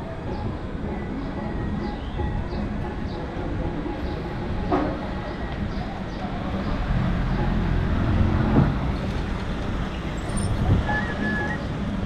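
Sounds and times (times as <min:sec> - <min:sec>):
street background hum: 0:00.0 - 0:12.0
vehicle engine rumbling past: 0:04.3 - 0:12.0.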